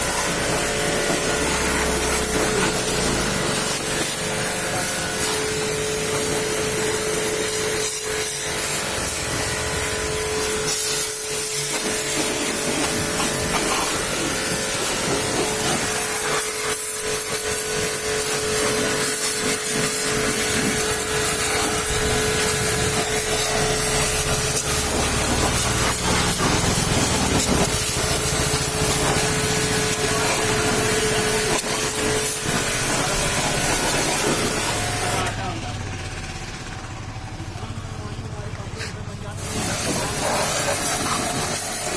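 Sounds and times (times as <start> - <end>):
pressure washer spray hissing: 0.0 - 35.9, 37.3 - 41.9
steady hum: 0.0 - 41.9.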